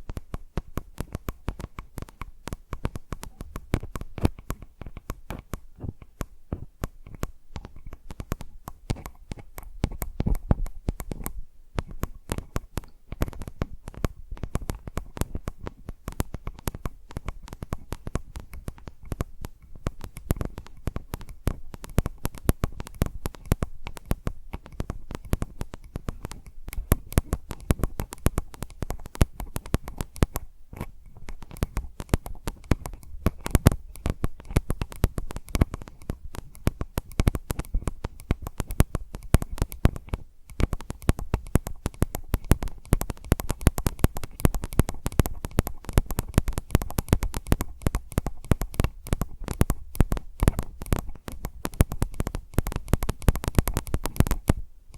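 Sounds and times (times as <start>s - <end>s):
fingers tapping on microphone: 0.0s - 54.9s.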